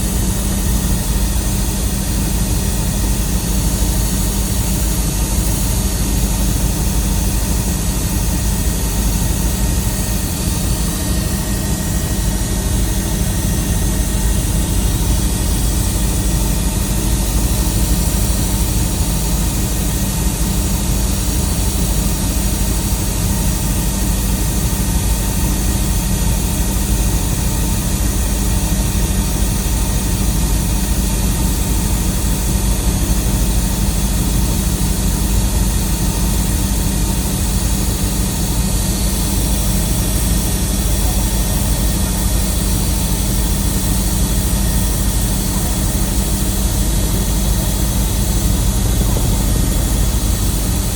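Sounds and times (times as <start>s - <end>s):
helicopter cabin drone: 0.0s - 50.9s.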